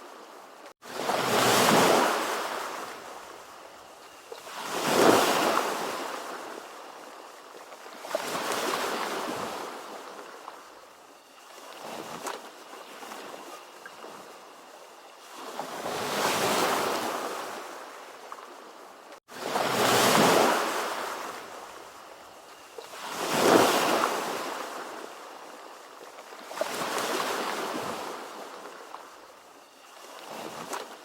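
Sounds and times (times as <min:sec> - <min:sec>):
ocean waves breaking: 0:00.8 - 0:03.4, 0:04.2 - 0:10.7, 0:15.2 - 0:18.3, 0:19.3 - 0:21.8, 0:22.8 - 0:25.4.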